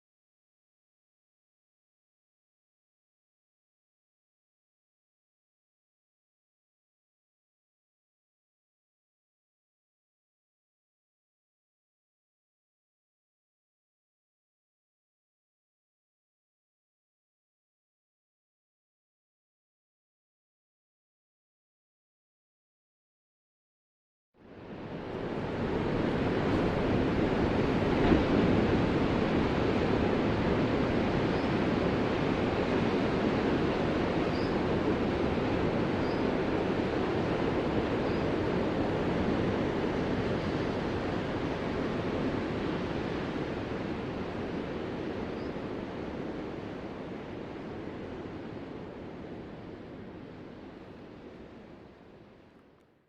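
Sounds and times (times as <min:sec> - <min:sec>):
ocean surf rushing: 0:24.5 - 0:51.9.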